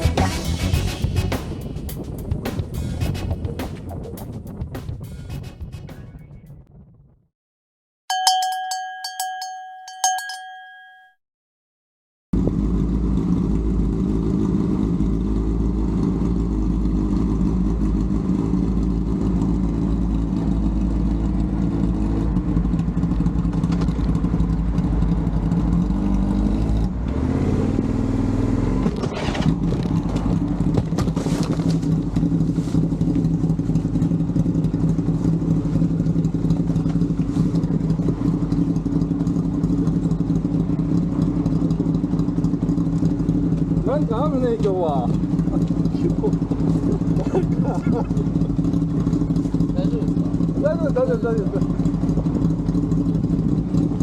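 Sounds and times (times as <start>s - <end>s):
vehicle engine running: 0.0s - 6.6s, 12.4s - 54.0s
bell-like chime: 8.1s - 11.2s.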